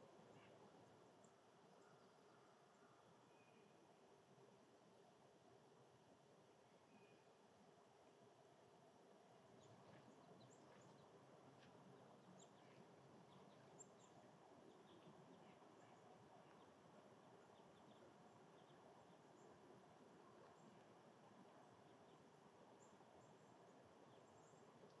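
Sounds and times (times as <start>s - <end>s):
faint high bird chirps: 1.2s - 3.9s, 6.8s - 7.4s.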